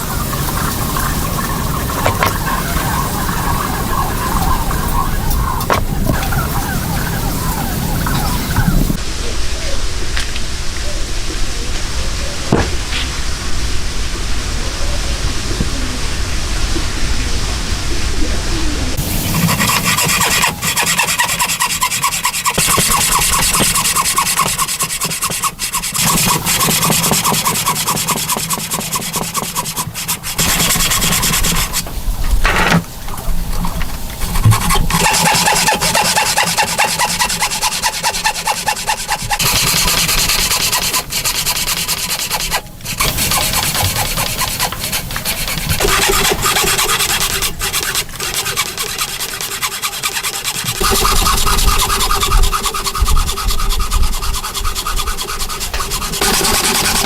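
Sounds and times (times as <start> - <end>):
rasping strokes on wood: 0.0 - 9.0, 19.0 - 57.0.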